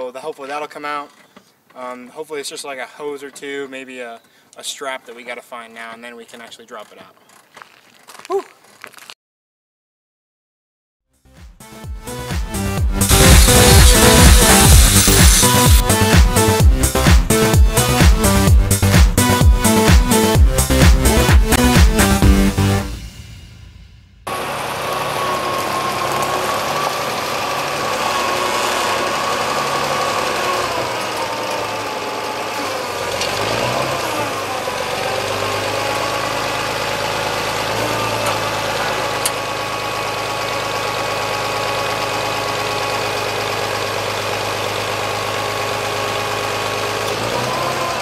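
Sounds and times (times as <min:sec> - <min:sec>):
engine idling: 0:13.0 - 0:18.8, 0:23.8 - 0:48.0.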